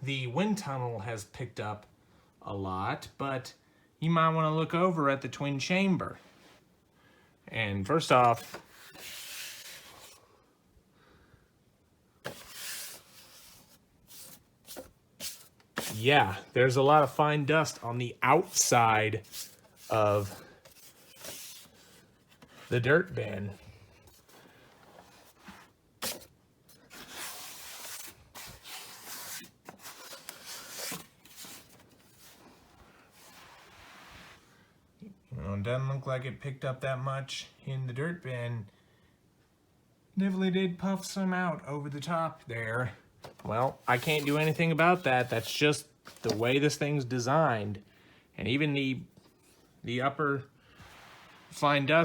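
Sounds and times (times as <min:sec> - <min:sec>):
plastic bin short scrape: 0:12.2 - 0:16.4, 0:50.7 - 0:52.0
plastic bin soft rub: 0:12.2 - 0:26.2, 0:26.8 - 0:34.6, 0:50.7 - 0:52.0.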